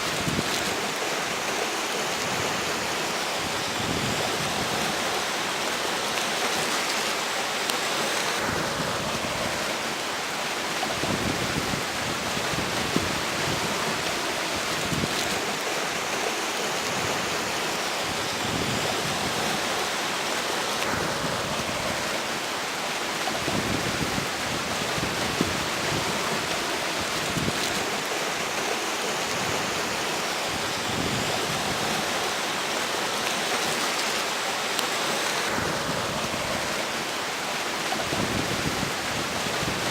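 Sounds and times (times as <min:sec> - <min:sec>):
flowing river water: 0:00.0 - 0:39.9
gusting wind: 0:00.0 - 0:39.9
wind buffeting microphone: 0:10.9 - 0:14.0, 0:38.0 - 0:39.9.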